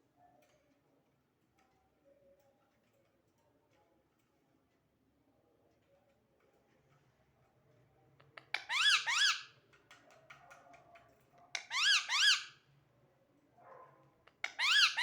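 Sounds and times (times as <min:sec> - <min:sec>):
parrot squeaky calls: 0:08.5 - 0:09.5, 0:11.6 - 0:12.6, 0:14.4 - 0:15.0.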